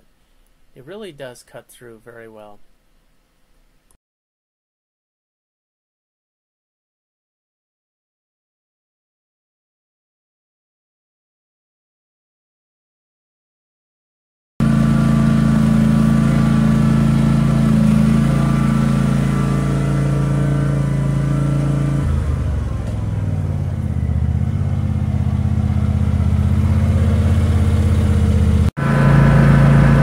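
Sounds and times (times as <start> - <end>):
tractor engine running: 14.6 - 30.0.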